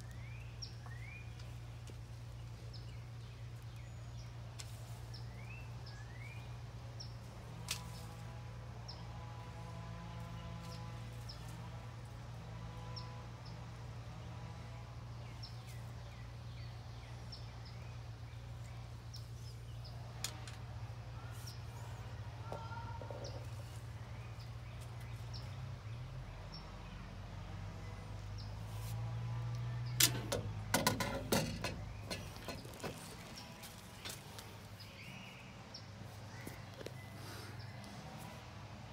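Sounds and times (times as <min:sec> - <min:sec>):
small birds chirping: 0:00.0 - 0:09.2, 0:09.8 - 0:38.4
sharp clicks and knocks: 0:30.0 - 0:33.4.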